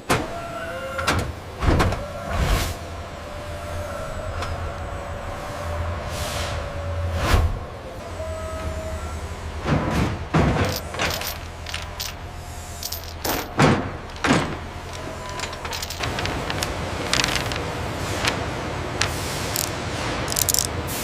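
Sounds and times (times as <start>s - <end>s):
sharp knocks and clatters: 12.8s - 20.7s.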